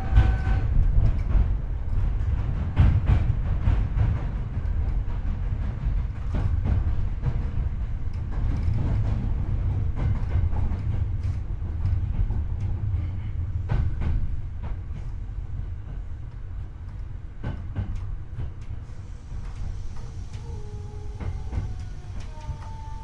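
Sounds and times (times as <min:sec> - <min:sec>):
rail joints clacking: 0:00.0 - 0:23.0
train wheels rumbling on track: 0:00.0 - 0:23.0.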